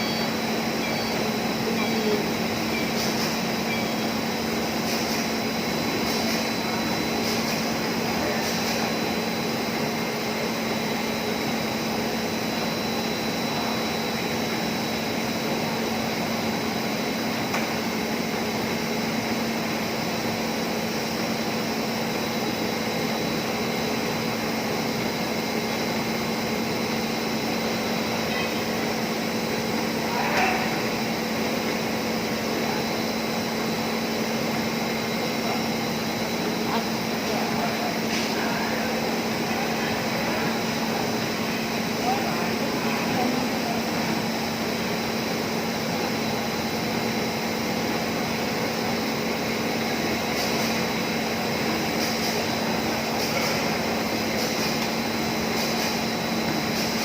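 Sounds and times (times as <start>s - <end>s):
bag cutting machine humming: 26.3s - 57.0s.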